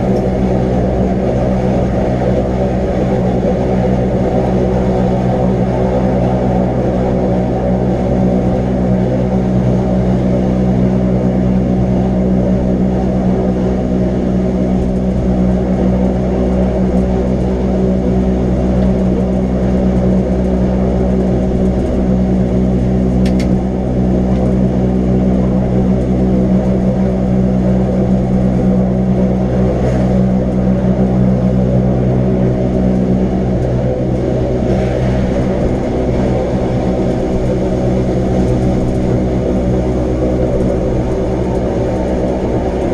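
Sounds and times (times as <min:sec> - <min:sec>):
electric train droning hum: 0:00.0 - 0:42.9
low rumble: 0:00.0 - 0:42.9.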